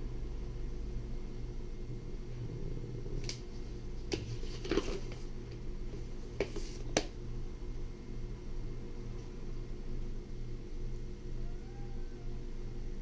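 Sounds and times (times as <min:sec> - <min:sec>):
steady low hum: 0:00.0 - 0:13.0
paper pages turning: 0:04.1 - 0:05.3.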